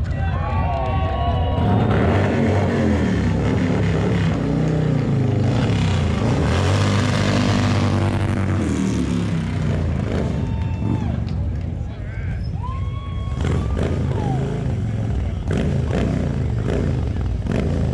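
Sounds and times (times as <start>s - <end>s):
motorcycle engine running: 13.3s - 17.9s.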